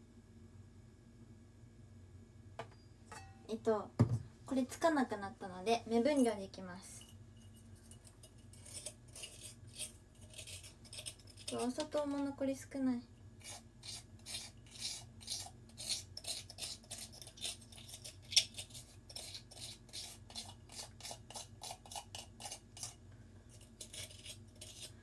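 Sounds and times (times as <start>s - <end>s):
spoon scraping sugar container: 6.0s - 12.3s, 13.4s - 25.0s.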